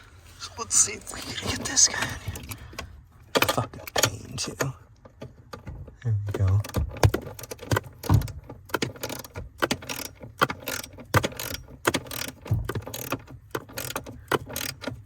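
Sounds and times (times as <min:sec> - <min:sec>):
torque wrench ratchet clicking: 0:08.9 - 0:15.0.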